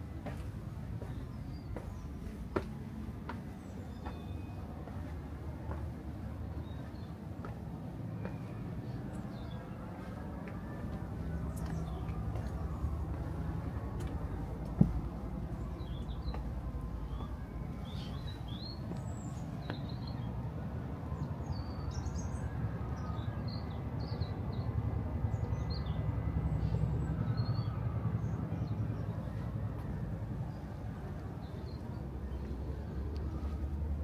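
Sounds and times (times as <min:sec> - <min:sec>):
low background rumble: 0:00.0 - 0:19.8.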